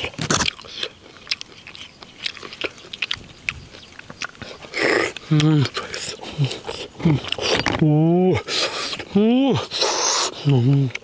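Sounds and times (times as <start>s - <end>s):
person chewing food: 0.0s - 11.0s
wet mouth clicks and smacks: 0.3s - 6.2s.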